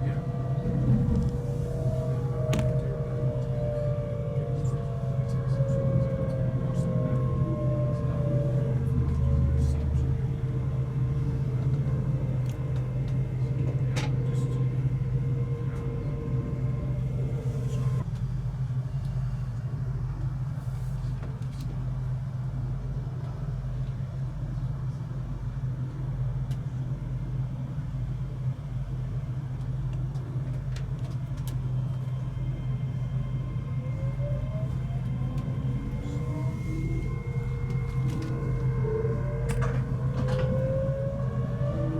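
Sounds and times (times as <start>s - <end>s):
rising whine: 0.0s - 18.0s, 31.7s - 41.9s
train rumbling along track: 0.0s - 41.9s.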